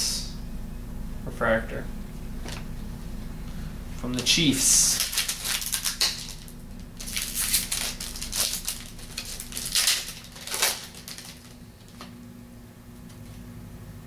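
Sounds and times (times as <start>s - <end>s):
cards and wrapper crinkling: 4.1s - 12.1s.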